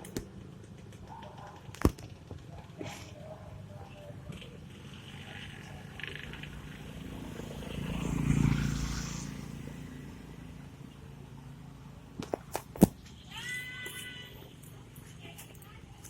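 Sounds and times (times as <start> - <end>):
vehicle passing by: 4.6 - 12.2.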